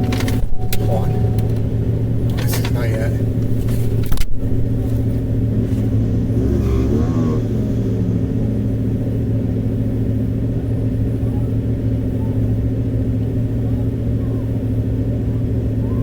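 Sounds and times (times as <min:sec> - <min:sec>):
brief wavering tone: 0:00.0 - 0:02.3
vehicle engine droning: 0:00.0 - 0:16.0.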